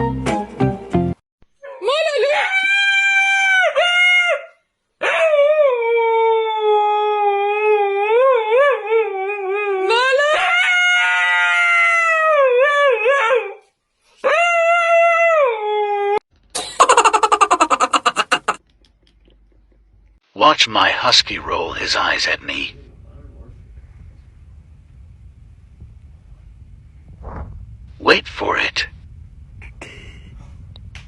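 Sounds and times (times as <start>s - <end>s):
dog howling: 1.6s - 13.6s
rapid pulsing buzz: 21.3s - 31.0s.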